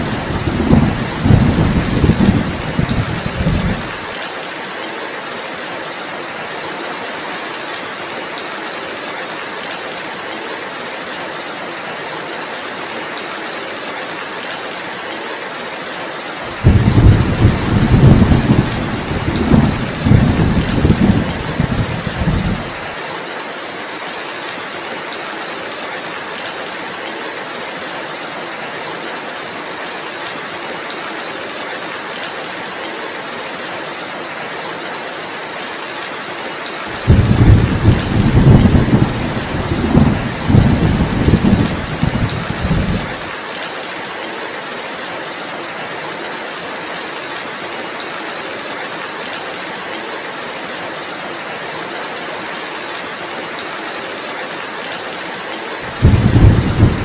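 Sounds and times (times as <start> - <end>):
low thunder rumbling: 0.0 - 4.0, 16.5 - 22.8, 37.0 - 43.2, 55.9 - 57.0
heavy rain: 0.0 - 57.0.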